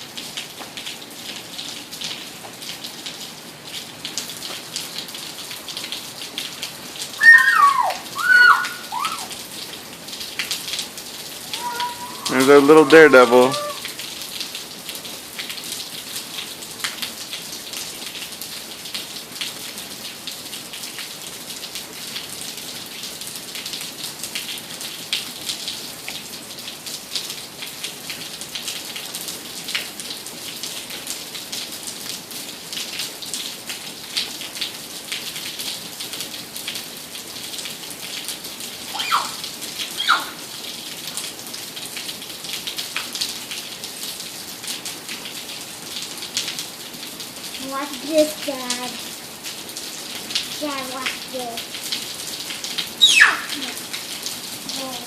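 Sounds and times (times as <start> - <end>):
steady rain falling: 0.0 - 55.0
brief high-pitched sounds: 7.2 - 9.3, 11.6 - 13.8.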